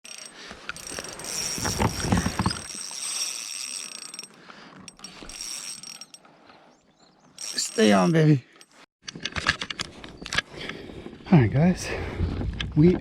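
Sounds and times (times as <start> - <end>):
fishing reel gears whining: 0.1 - 6.3, 7.3 - 8.8
rumbling and rustling: 0.8 - 2.8.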